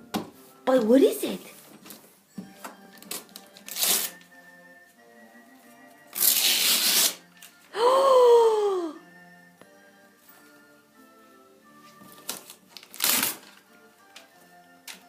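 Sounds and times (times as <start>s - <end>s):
faint background music: 0.0s - 15.0s
wrapping paper rustling and tearing: 3.0s - 4.2s, 6.1s - 7.6s, 12.1s - 13.7s
person saying ooh: 7.8s - 9.0s.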